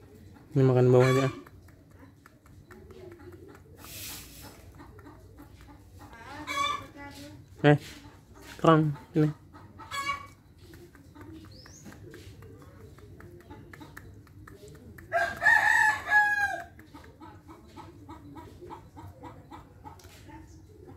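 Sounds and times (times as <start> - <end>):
beak pecking at seed: 1.3 - 6.9, 10.1 - 17.9
chicken crowing: 15.1 - 16.6.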